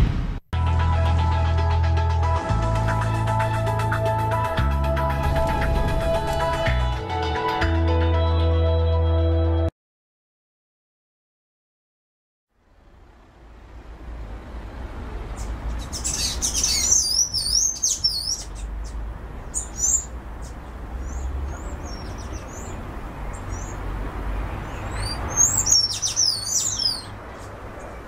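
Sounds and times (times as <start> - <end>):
small birds chirping: 15.0 - 28.0.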